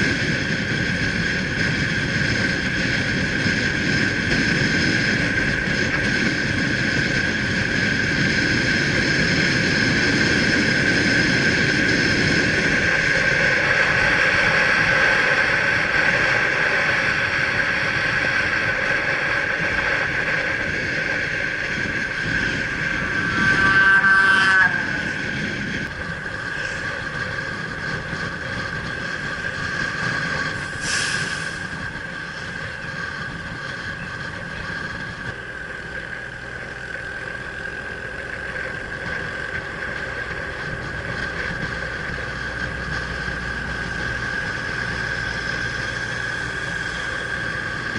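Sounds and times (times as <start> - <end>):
motorbike engine running: 0.0 - 30.9, 31.6 - 47.9
steady whine: 0.0 - 47.9
wind noise: 0.0 - 47.9
passing horn-like tone: 23.0 - 25.3.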